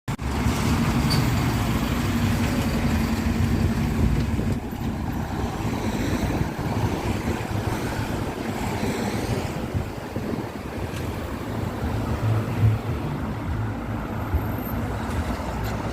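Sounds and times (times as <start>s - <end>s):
heavy vehicle engine rumbling: 0.1s - 15.9s.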